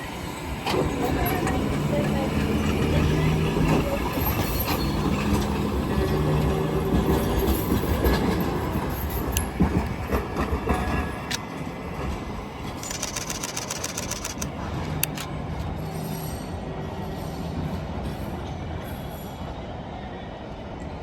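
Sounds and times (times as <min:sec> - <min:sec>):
tram motor hum: 0:00.5 - 0:15.8
wheels clicking on rails: 0:00.7 - 0:15.4.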